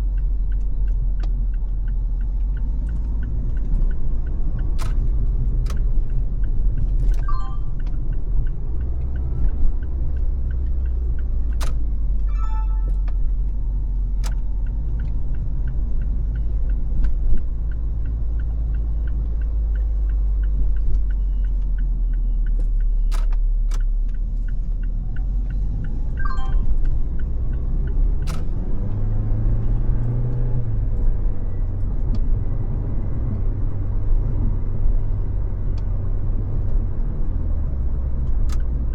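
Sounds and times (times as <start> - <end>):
road and engine rumble: 0.0 - 38.9
short high chirps: 12.3 - 13.1, 26.2 - 26.8
rising pitch: 12.3 - 13.3.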